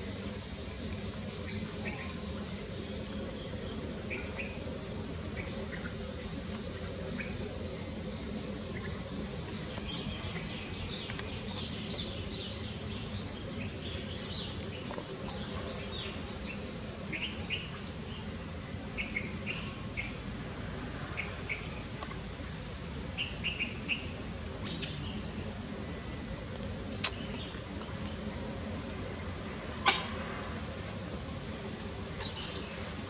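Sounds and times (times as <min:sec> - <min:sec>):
outdoor background noise: 0:00.0 - 0:33.0
birds chirping: 0:32.2 - 0:33.0.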